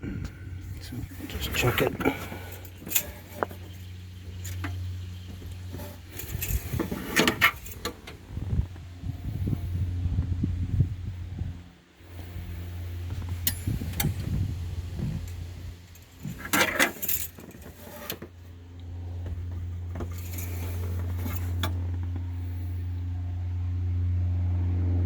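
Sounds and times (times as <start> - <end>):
steady low hum: 0.0 - 25.0
metal dipstick clinks and rattles: 1.3 - 8.1, 15.2 - 18.2.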